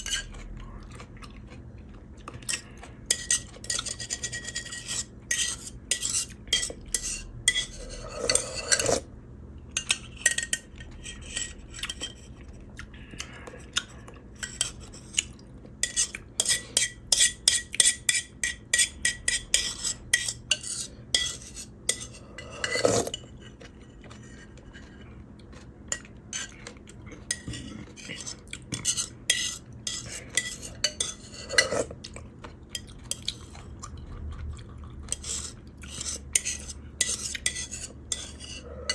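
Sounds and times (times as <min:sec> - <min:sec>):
utensils clinking on clay pot: 0:02.4 - 0:09.0, 0:15.8 - 0:32.0, 0:35.1 - 0:38.9.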